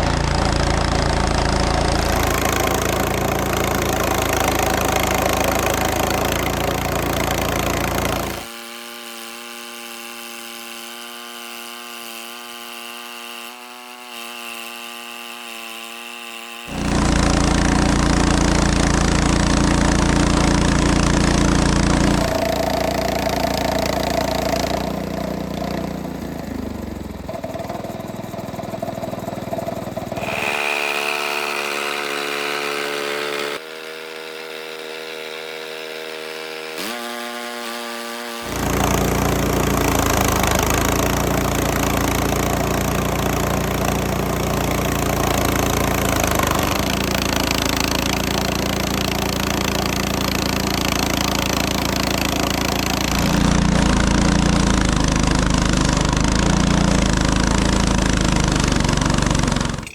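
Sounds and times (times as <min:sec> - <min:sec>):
gasoline engine running: 0:00.0 - 0:08.5, 0:16.7 - 0:33.6, 0:38.4 - 0:59.9
saw blade cutting log: 0:00.0 - 0:59.9.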